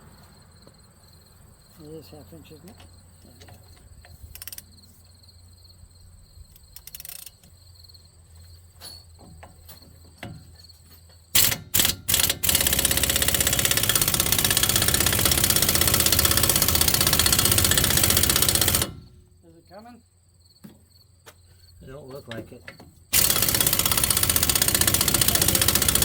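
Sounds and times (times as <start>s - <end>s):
impact wrench hammering: 11.4s - 19.1s, 23.1s - 26.0s.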